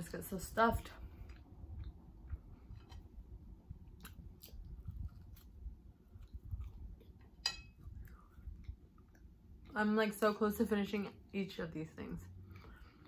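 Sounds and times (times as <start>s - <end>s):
person chewing food: 1.0s - 9.8s, 12.5s - 13.0s.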